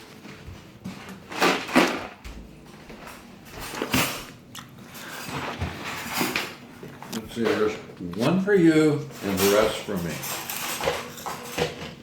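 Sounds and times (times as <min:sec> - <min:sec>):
objects rustling and rattling: 0:00.0 - 0:12.0.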